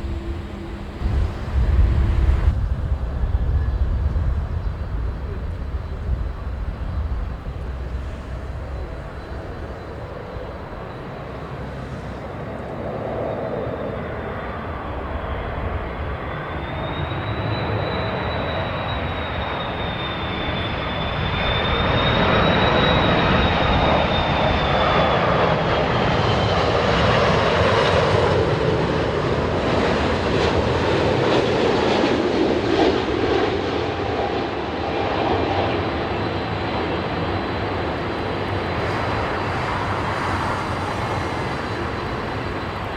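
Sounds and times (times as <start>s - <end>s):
jet engines whining: 0.0s - 42.9s
wind buffeting microphone: 0.0s - 42.9s.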